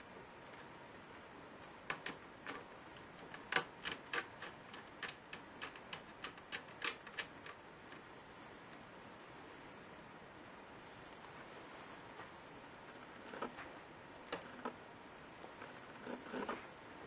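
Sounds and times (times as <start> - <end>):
laptop parts clicking and tapping: 1.6 - 8.0.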